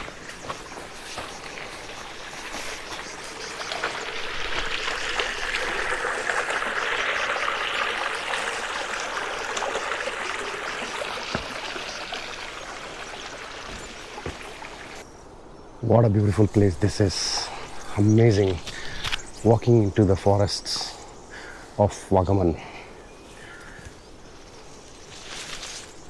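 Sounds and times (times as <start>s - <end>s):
stream trickling: 0.0s - 15.1s.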